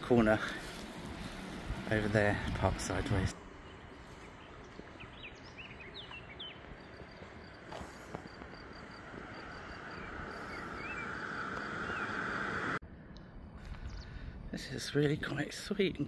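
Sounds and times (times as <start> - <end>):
small birds chirping: 0.2 - 12.7.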